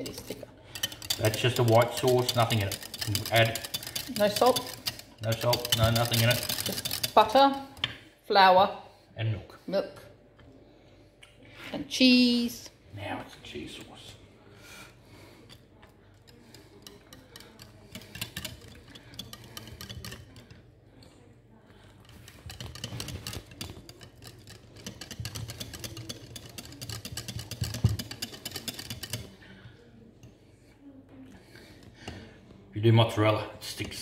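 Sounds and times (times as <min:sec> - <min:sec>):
utensil scraping a bowl: 0:00.0 - 0:08.0, 0:15.2 - 0:20.7, 0:21.8 - 0:29.4.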